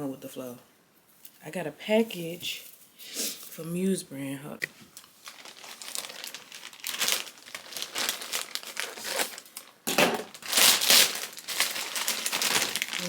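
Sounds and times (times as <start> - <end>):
plastic bag crinkling and tearing: 4.9 - 13.0.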